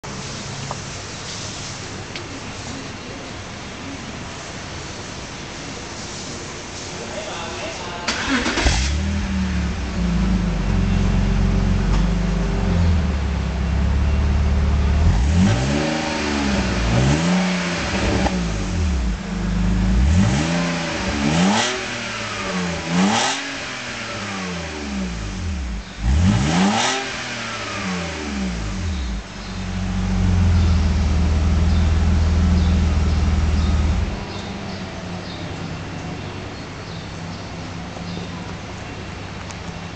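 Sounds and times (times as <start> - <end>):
car engine idling and revving: 8.1 - 36.6.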